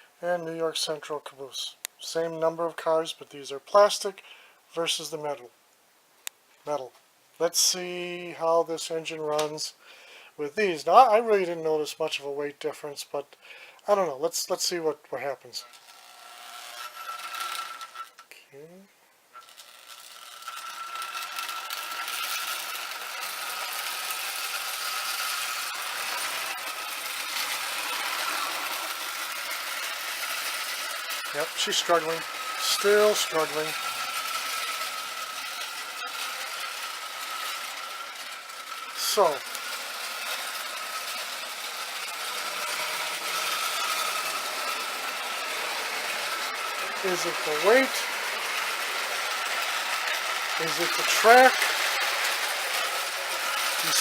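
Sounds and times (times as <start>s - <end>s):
toy train motor whirring: 13.2s - 18.3s, 19.3s - 54.0s
wheels rattling on rails: 15.6s - 18.2s, 19.3s - 54.0s
hiss of wheels and gears: 27.3s - 34.7s.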